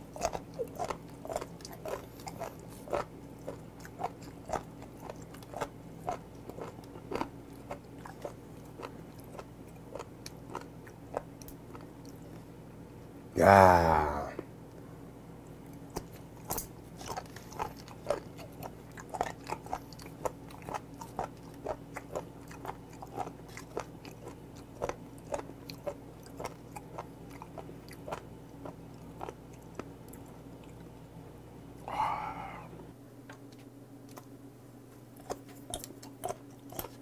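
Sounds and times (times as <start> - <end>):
wet crunchy chewing: 0.0 - 12.5, 15.6 - 30.9, 35.2 - 37.0
low hum: 29.9 - 33.2.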